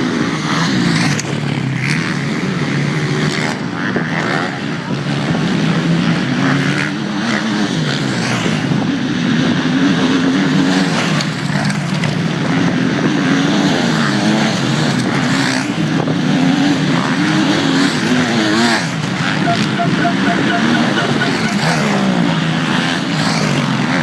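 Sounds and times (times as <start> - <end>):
motocross bike engines revving: 0.1 - 24.0.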